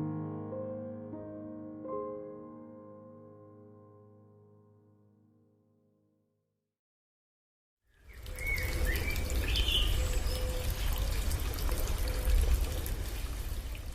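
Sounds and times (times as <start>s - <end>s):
running water: 8.0s - 13.9s.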